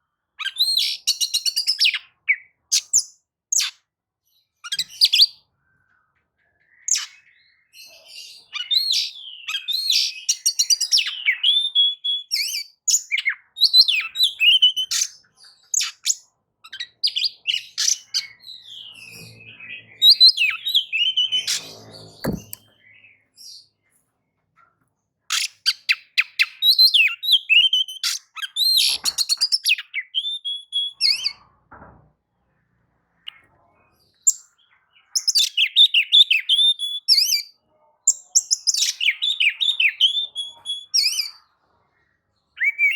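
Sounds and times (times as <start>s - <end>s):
bird singing whistles and chirps: 6.6s - 15.1s, 15.8s - 23.3s, 25.3s - 31.4s, 35.1s - 37.5s, 38.4s - 41.4s, 42.6s - 42.9s.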